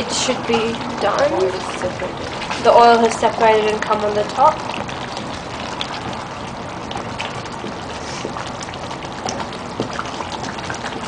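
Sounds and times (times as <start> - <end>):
curry bubbling and sizzling in pan: 0.0 - 11.0.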